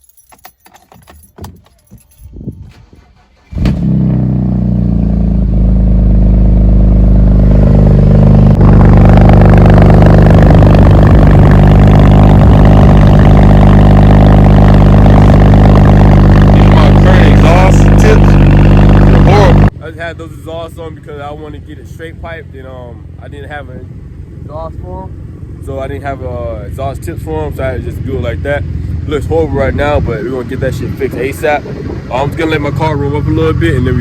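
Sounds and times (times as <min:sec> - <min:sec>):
car engine cranking and starting: 0:02.6 - 0:19.7
car engine idling loudly: 0:05.0 - 0:26.4.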